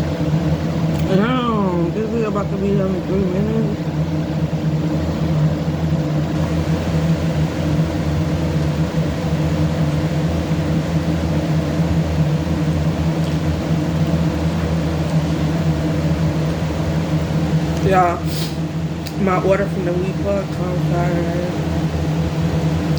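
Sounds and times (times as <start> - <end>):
droning mechanical hum: 0.0 - 22.9.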